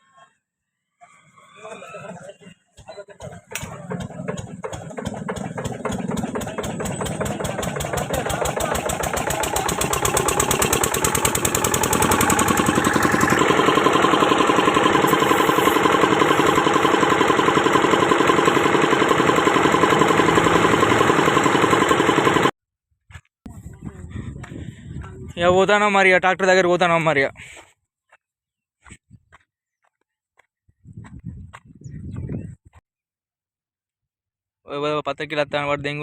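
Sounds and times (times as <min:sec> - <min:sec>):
engine running with fast beat: 0:02.7 - 0:22.5.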